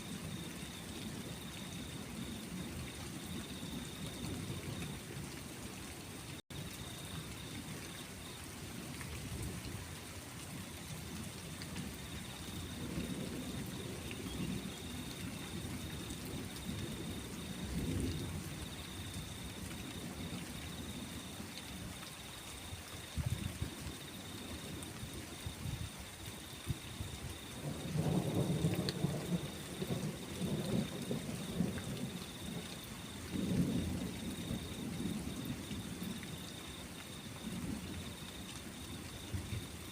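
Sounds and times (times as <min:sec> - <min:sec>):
steady rain: 0:00.0 - 0:39.9
rolling thunder: 0:11.8 - 0:21.1, 0:27.0 - 0:36.4.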